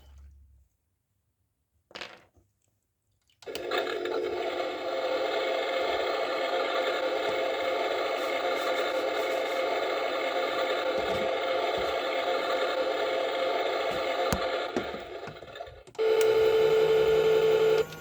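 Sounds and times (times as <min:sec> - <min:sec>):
small electric motor whirring: 0:16.0 - 0:18.0.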